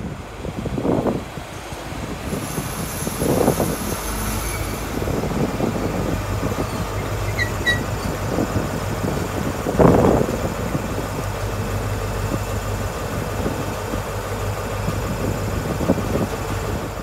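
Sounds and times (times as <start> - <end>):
wheels rumbling over rails: 0.0 - 17.0
high brake squeal: 2.3 - 5.2, 6.6 - 8.2
diesel engine humming: 3.2 - 17.0.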